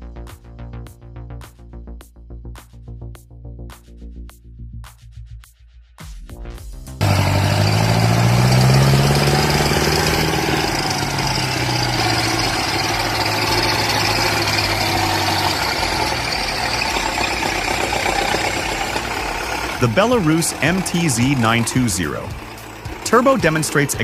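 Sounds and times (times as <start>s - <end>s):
tractor diesel engine under load: 7.0s - 24.0s.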